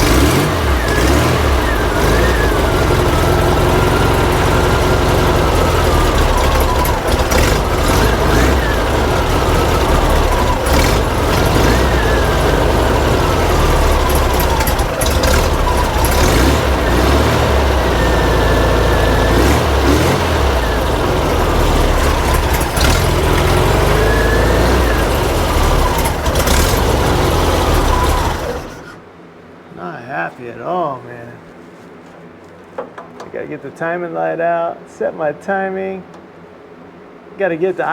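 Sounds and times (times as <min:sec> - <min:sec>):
engine running unevenly at idle: 0:00.0 - 0:29.1.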